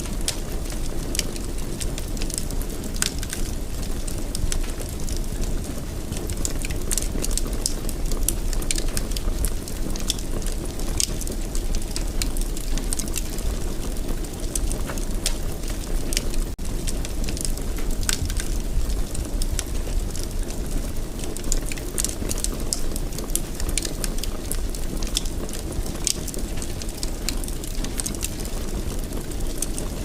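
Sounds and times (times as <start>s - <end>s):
fire crackling and popping: 0.0s - 30.0s
low fire rumble: 0.0s - 30.0s.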